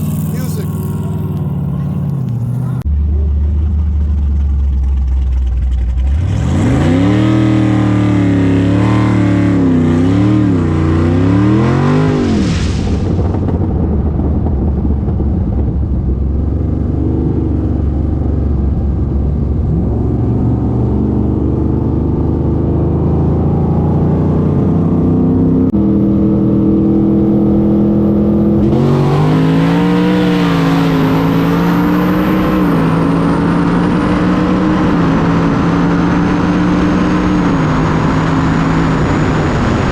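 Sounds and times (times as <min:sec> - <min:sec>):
race car engines running hard: 0:00.0 - 0:11.6
wind and road noise rush: 0:00.0 - 0:39.9.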